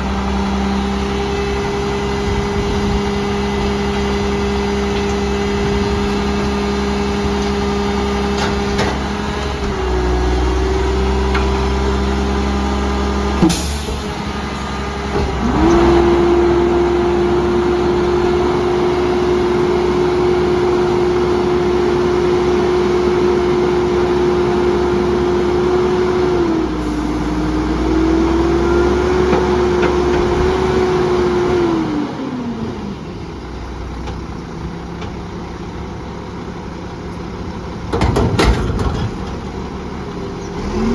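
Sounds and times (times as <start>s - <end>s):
diesel engine running and revving: 0.0s - 40.9s.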